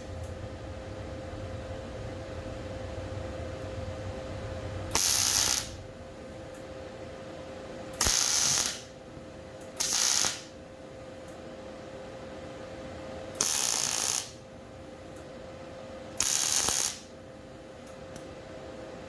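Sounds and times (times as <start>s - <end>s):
welding crackling sizzle: 0.0s - 6.7s, 7.9s - 9.0s, 9.6s - 10.6s, 13.4s - 14.4s, 16.2s - 17.2s
steady low hum: 0.0s - 13.4s.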